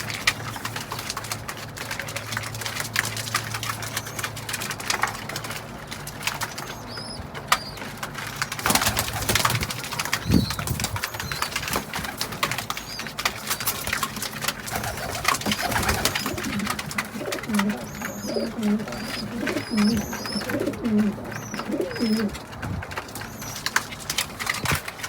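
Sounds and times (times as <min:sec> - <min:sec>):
scratchy clicks and rustles: 0:00.0 - 0:25.0
wings flapping: 0:00.0 - 0:25.0
pigeons cooing: 0:06.2 - 0:24.8.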